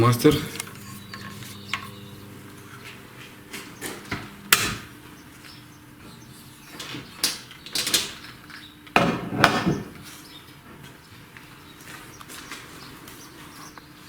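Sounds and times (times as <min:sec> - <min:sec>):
faint machine hum: 0:00.0 - 0:14.0
metal tools clicking and knocking: 0:00.3 - 0:02.0.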